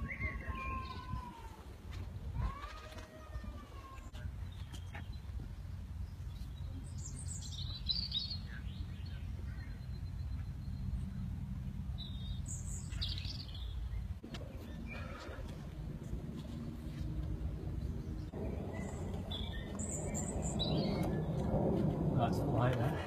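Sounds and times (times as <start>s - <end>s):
birds chirping and singing: 0.0s - 1.5s, 3.7s - 15.7s, 17.6s - 21.7s
low rumble: 8.3s - 23.0s.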